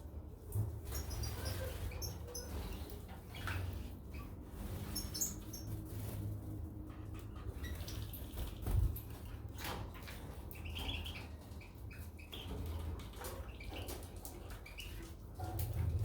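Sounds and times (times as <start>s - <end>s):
birds chirping: 0.9s - 5.8s.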